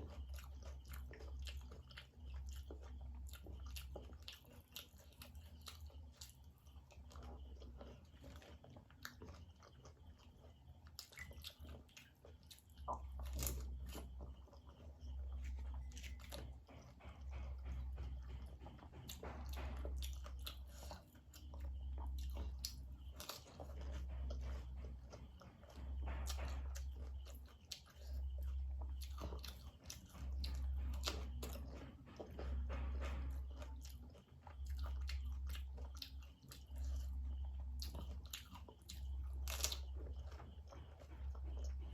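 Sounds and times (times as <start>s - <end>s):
crisp shells crunching while chewing: 19.0s - 32.4s, 33.0s - 41.7s.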